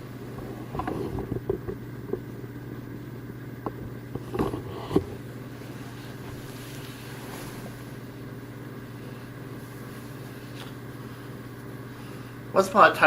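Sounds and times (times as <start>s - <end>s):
steady low hum: 0.0s - 13.0s
knocks and bumps: 0.7s - 2.3s
short rustles: 4.2s - 8.3s.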